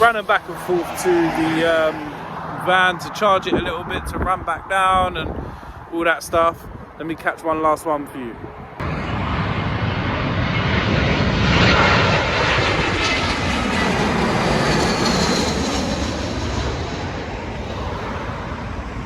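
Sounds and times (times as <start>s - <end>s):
jet airliner passing overhead: 0.0s - 7.0s, 8.4s - 19.0s
high engine whine falling in pitch: 8.8s - 19.0s.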